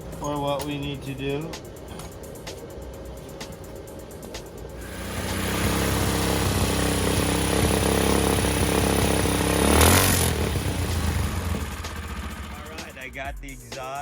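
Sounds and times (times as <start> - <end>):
small engine running: 4.8 - 13.1.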